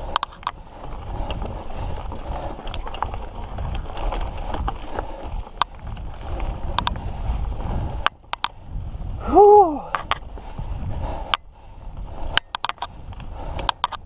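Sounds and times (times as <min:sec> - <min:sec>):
bike rattling over rocks: 0:00.0 - 0:08.9, 0:12.1 - 0:14.0
wind and tyre noise: 0:00.0 - 0:14.0.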